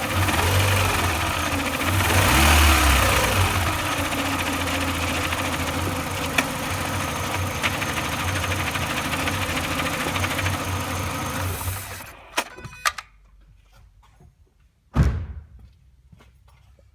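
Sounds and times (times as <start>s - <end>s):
car engine idling with rattle: 0.0s - 12.3s
heavy thud: 15.0s - 15.6s.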